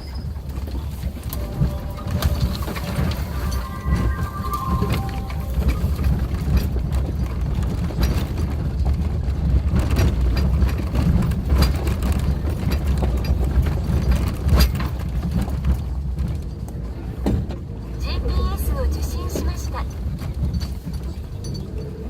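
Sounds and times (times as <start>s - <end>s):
engine and tyre rumble: 6.1s - 22.0s.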